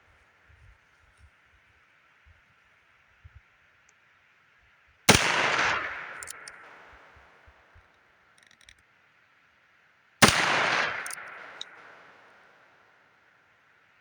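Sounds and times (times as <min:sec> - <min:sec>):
faint clicks: 0:05.6 - 0:08.9, 0:10.7 - 0:12.3.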